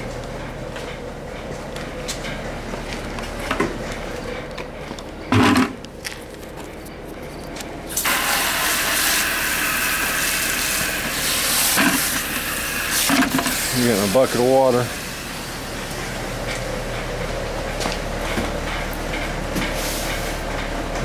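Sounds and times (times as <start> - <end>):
garden hose spraying water: 7.9 - 15.7.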